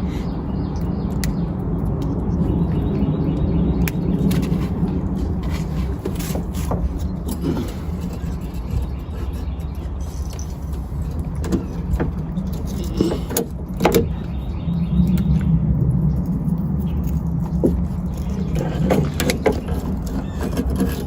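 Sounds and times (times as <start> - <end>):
sharp clicks and knocks: 3.8 - 14.4, 16.2 - 21.0.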